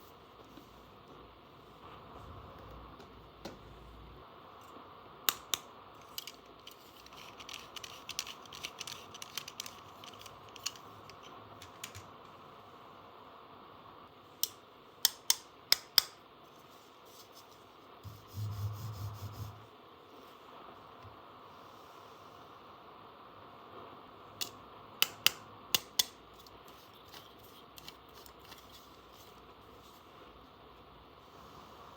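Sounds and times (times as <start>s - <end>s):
plastic toy pieces clicking: 6.0s - 12.1s.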